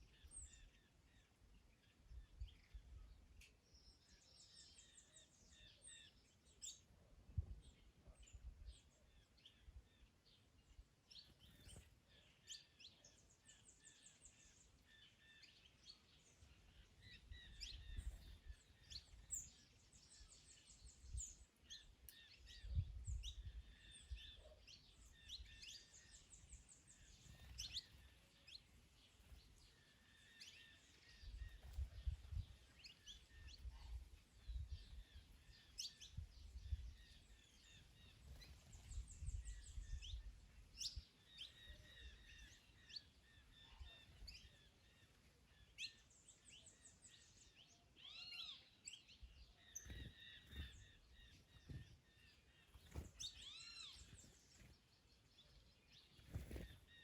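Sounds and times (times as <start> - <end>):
small birds chirping: 0.0 - 57.0
wind rumbling on microphone: 22.4 - 24.3, 31.2 - 32.7, 33.3 - 37.3, 38.4 - 41.1.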